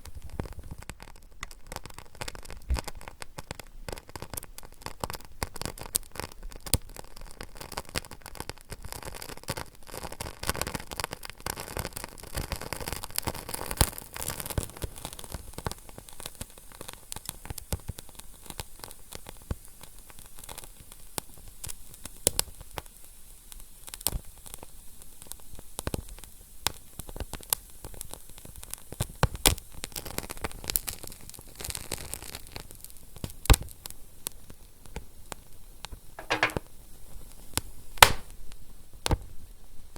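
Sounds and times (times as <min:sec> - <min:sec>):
fire crackling and popping: 0:00.0 - 0:22.6, 0:38.0 - 0:38.4.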